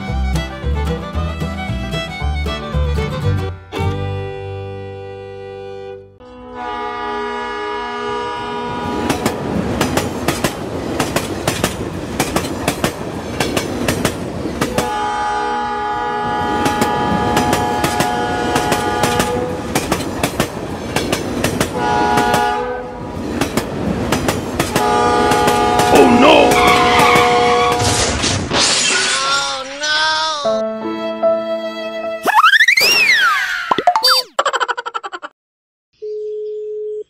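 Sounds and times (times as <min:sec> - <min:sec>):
toy train horn: 0:06.2 - 0:09.0, 0:14.8 - 0:19.6, 0:21.8 - 0:23.0, 0:24.8 - 0:27.9.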